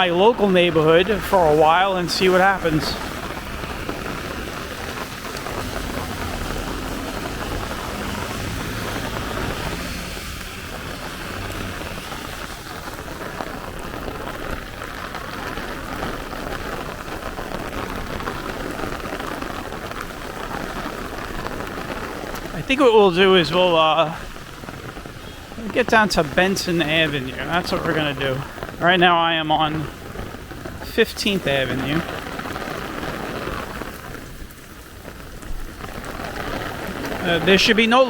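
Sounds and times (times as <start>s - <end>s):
heavy rain pattering: 0.0s - 38.0s.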